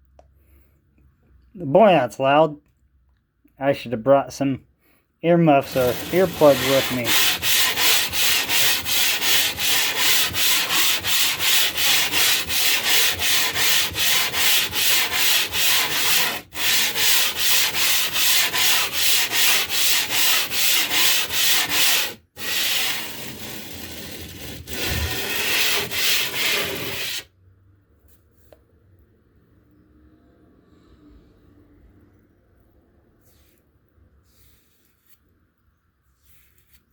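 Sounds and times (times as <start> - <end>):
stone rasping against abrasive surface: 5.6 - 27.3.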